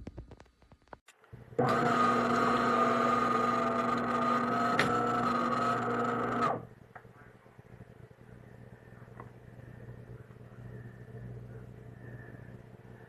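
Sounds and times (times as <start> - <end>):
espresso machine motor and pump: 1.5 - 6.7.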